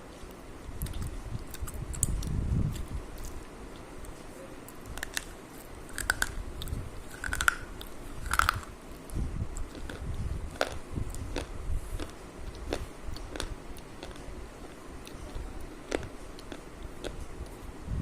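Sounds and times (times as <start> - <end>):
crunchy food being chewed: 0.2 - 17.6.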